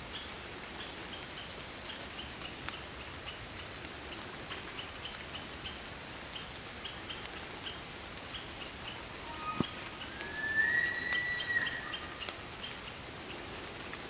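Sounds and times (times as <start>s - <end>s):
rain drops ticking: 0.0s - 9.2s, 11.1s - 14.0s
rain hissing: 5.9s - 14.0s
crickets chirping: 8.6s - 12.7s.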